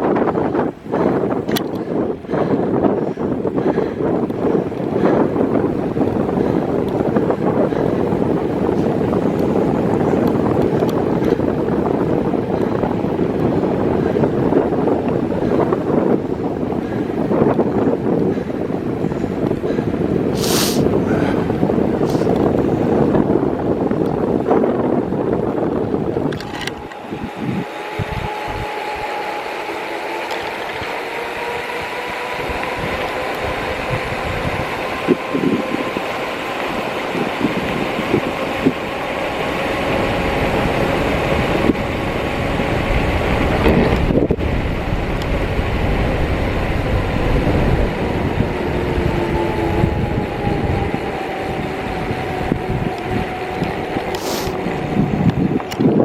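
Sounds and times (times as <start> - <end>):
bicycle road noise: 0.0 - 56.0
moving bike running noise: 0.0 - 56.0
wind buffeting microphone: 0.0 - 56.0
faint rising whine: 25.3 - 56.0.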